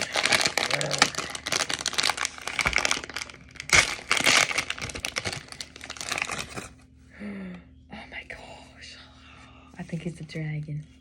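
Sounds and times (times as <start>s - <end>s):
toy package crinkling and tearing: 0.0s - 6.7s.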